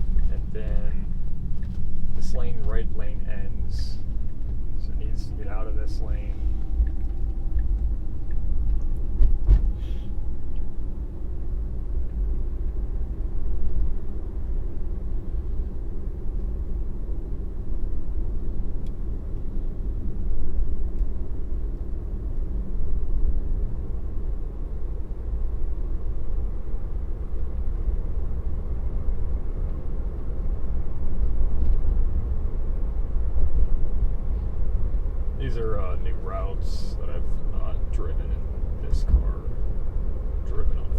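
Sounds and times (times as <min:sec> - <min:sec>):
road and tyre rumble: 0:00.0 - 0:40.9.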